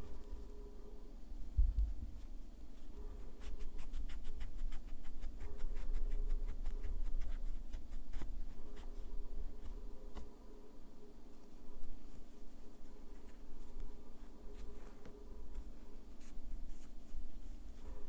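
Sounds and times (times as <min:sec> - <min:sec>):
nail file scratching fingernails: 0:03.4 - 0:09.0.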